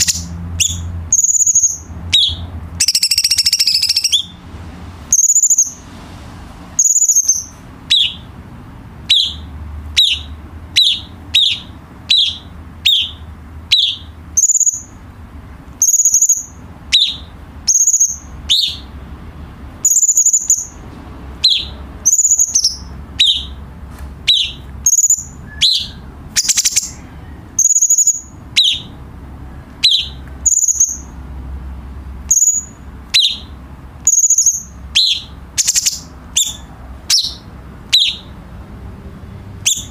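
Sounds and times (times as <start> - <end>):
bird whistling calls: 0.0 - 4.4, 5.1 - 5.8, 6.8 - 8.3, 9.0 - 15.0, 15.8 - 19.0, 19.8 - 20.8, 21.4 - 23.6, 24.2 - 29.0, 29.8 - 31.1, 32.3 - 38.3, 39.6 - 39.9.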